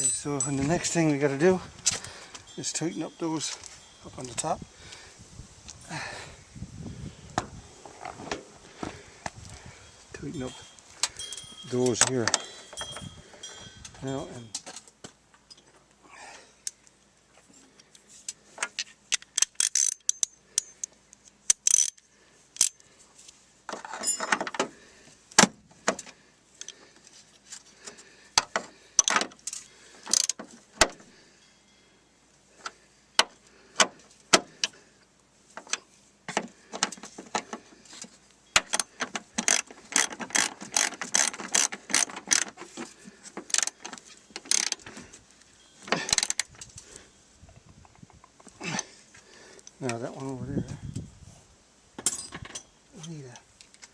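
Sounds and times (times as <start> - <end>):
socket ratchet clicking: 19.1 - 20.9, 21.5 - 22.0, 30.1 - 30.4, 38.6 - 42.5, 43.5 - 43.8, 44.4 - 44.8.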